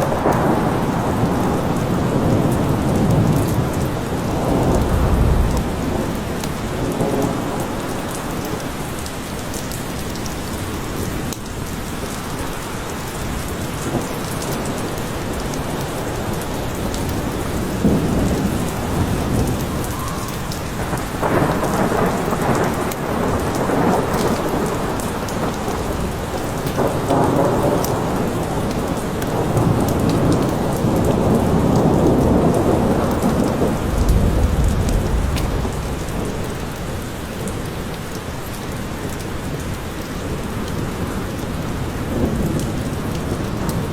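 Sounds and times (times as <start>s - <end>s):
low rolling thunder: 0.0s - 8.6s, 13.3s - 37.9s
rain falling in forest: 0.0s - 43.9s.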